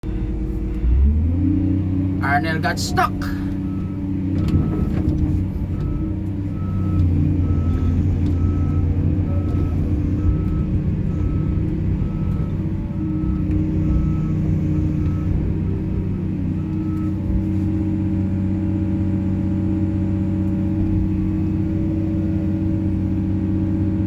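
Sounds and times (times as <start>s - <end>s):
diesel engine running: 0.0s - 24.0s
reversing alarm beeping: 5.7s - 15.4s.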